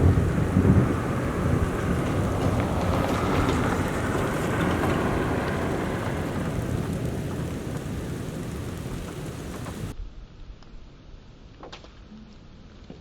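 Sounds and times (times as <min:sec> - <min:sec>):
falling rain: 0:00.0 - 0:10.0
thunder rumbling: 0:00.0 - 0:10.0.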